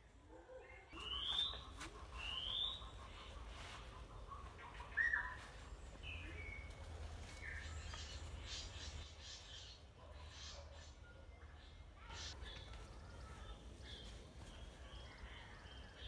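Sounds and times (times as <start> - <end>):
birds whistling descending notes: 0.9 - 3.0.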